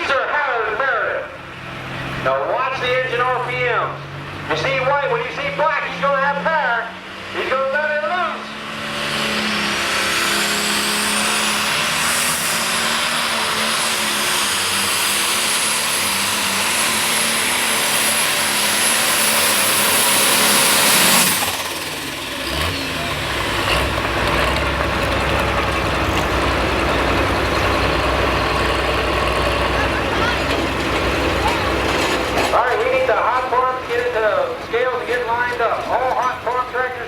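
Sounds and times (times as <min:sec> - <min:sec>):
high turbo whine: 0:00.0 - 0:37.0
tractor engine running under load: 0:08.5 - 0:37.0.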